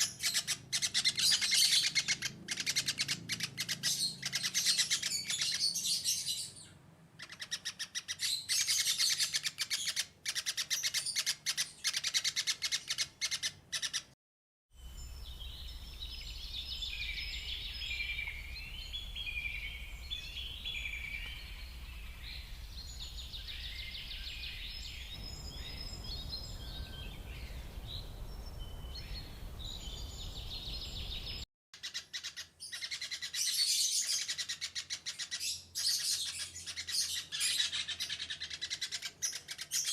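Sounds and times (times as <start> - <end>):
birds chirping: 0.0 - 14.2, 14.8 - 39.9
birds warbling song: 0.0 - 14.2, 14.8 - 39.9
low hum: 17.5 - 31.4.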